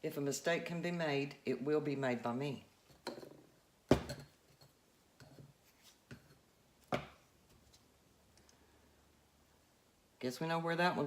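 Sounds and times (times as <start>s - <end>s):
hard objects knocking on table: 3.9s - 4.3s, 6.9s - 7.2s.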